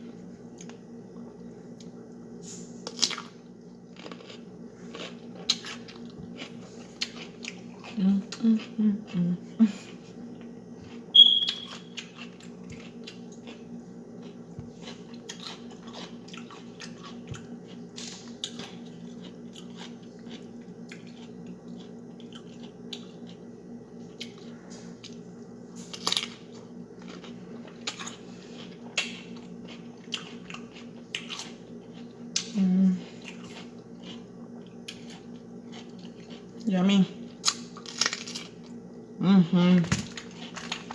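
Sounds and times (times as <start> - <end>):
steady low hum: 0.0 - 40.9
wet chewing and cracking crab legs: 2.8 - 8.8, 9.8 - 39.0, 39.9 - 40.9
loud high squeak: 11.2 - 11.7.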